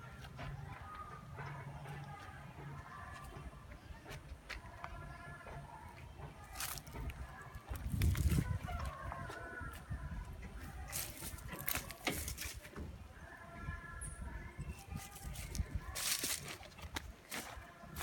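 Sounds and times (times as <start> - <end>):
chickens calling: 0.0 - 13.7.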